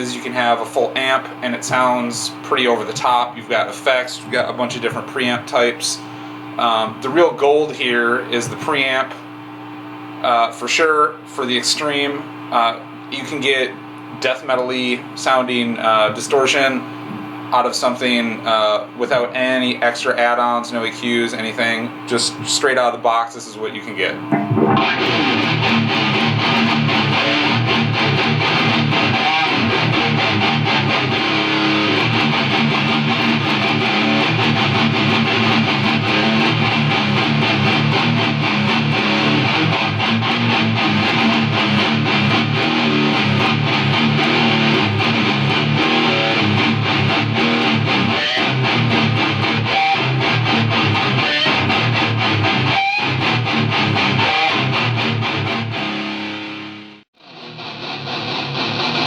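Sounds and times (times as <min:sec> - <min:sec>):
distorted electric guitar riffs: 0:24.2 - 0:59.0.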